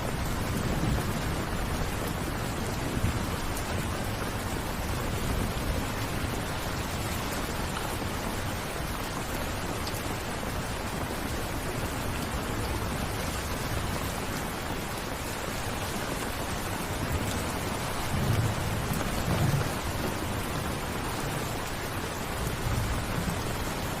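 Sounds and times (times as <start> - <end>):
steady rain hiss: 0.0 - 24.0
distant thunder rumbles: 17.2 - 21.4.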